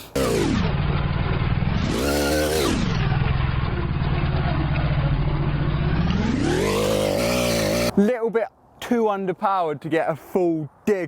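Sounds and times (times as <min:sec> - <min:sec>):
two-stroke engine revving: 0:00.0 - 0:08.0.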